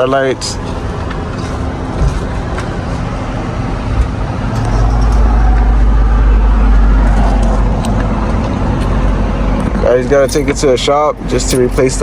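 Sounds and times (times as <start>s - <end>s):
motor vehicle rumble: 0.0s - 12.0s.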